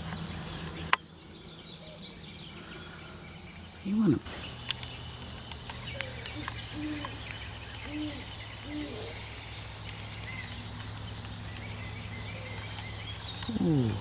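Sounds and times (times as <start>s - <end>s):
owl hooting: 7.8s - 9.2s.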